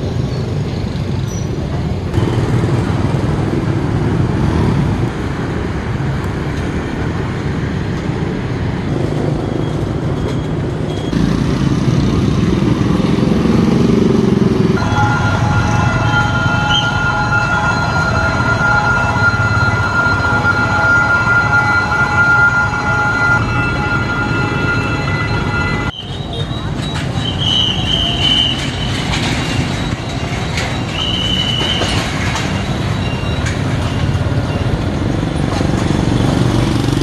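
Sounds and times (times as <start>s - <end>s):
passenger train rumbling: 0.0s - 37.0s
steady high tones: 14.8s - 31.7s.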